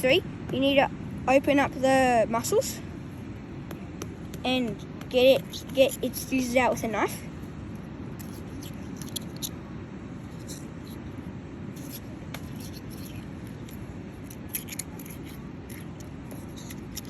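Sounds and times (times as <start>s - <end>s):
low background rumble: 0.0s - 17.0s
knife scraping mussel shell: 4.7s - 6.8s, 8.2s - 9.6s, 11.8s - 17.0s.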